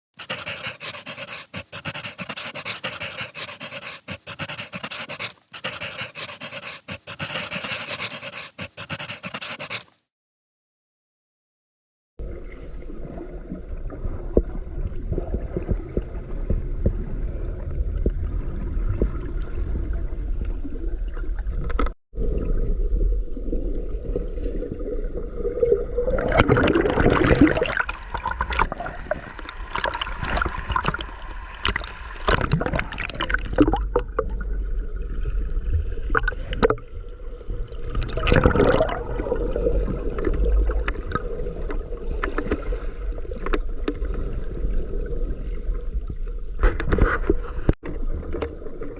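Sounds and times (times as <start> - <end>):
water sloshing and gurgling: 12.2 - 48.9.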